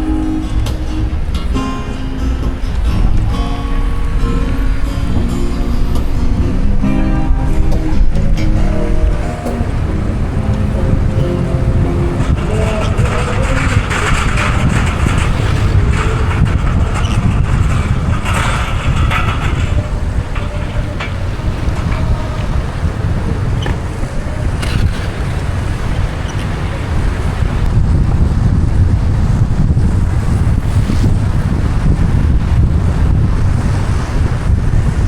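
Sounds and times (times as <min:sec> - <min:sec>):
car road rumble: 0:00.0 - 0:35.0
vehicles passing: 0:00.0 - 0:35.0
wind: 0:00.0 - 0:35.0.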